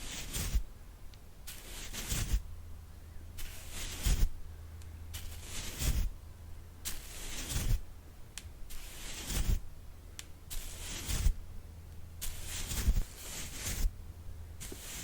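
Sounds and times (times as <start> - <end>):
soft brush strokes swishing: 0.0 - 0.7, 1.4 - 2.6, 3.4 - 4.4, 5.1 - 6.2, 6.8 - 7.9, 8.6 - 9.7, 10.5 - 11.5, 12.1 - 14.0, 14.6 - 15.0.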